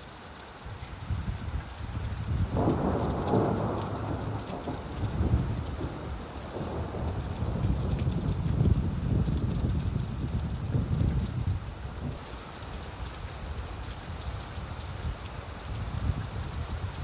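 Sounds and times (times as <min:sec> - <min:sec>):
steady rain: 0:00.0 - 0:17.0
thunder rumbling: 0:02.2 - 0:12.2.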